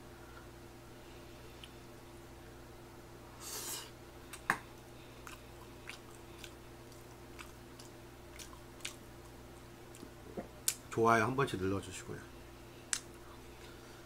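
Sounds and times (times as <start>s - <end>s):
low electrical hum: 0.0s - 14.0s
chewing with wet mouth clicks: 4.3s - 10.8s.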